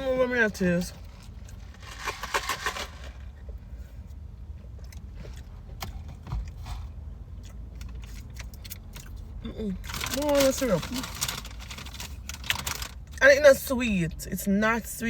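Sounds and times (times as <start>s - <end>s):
chewing clicks: 4.8s - 6.6s.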